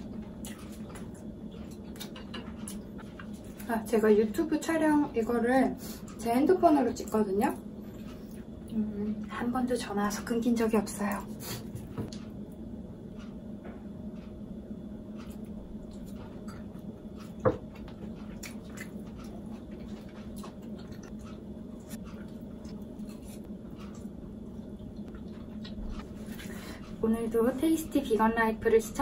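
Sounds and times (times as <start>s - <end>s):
steady low hum: 0.0s - 29.0s
person chewing: 0.1s - 3.6s, 15.2s - 27.0s.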